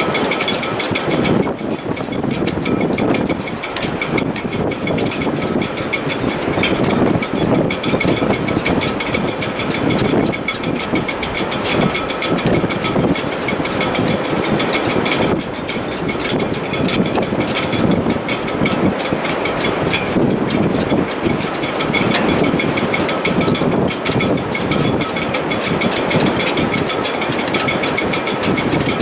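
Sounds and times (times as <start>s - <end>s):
gusting wind: 0.0s - 29.0s
rigging whistling: 15.6s - 26.1s.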